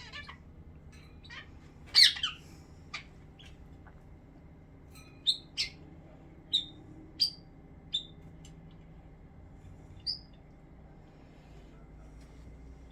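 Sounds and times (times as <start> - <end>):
bird chirping: 1.2 - 2.4, 5.2 - 5.8, 6.5 - 8.2, 10.0 - 10.4.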